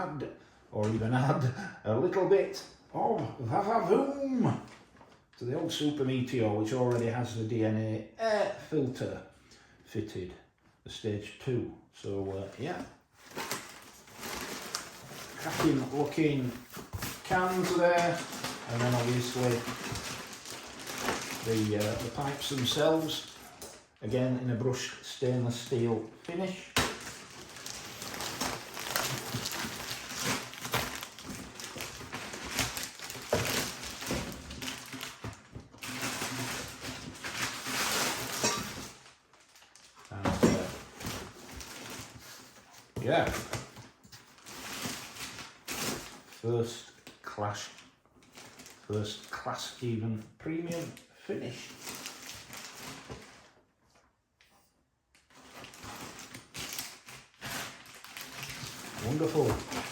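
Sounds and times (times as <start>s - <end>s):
packaging rustling and crinkling: 12.6s - 24.0s, 25.3s - 49.5s, 50.6s - 54.1s, 55.1s - 59.9s.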